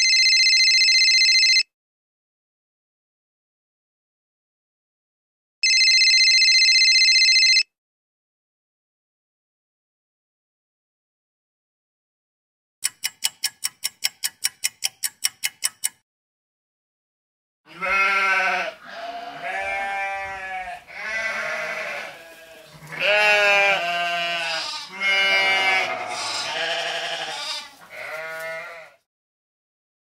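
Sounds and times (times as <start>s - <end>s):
clock ticking fast: 12.8s - 16.0s
sheep bleating: 17.7s - 29.1s.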